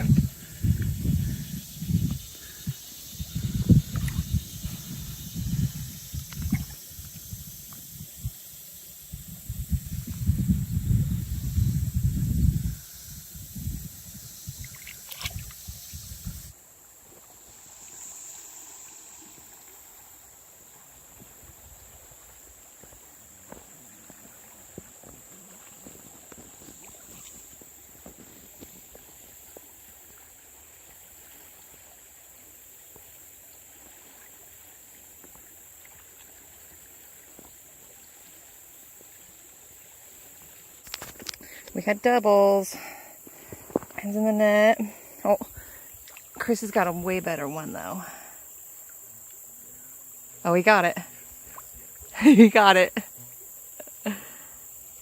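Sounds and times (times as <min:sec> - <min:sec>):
steady hiss: 0:00.0 - 0:55.0
faint ticks: 0:40.8 - 0:41.8, 0:46.0 - 0:46.5, 0:48.7 - 0:49.5.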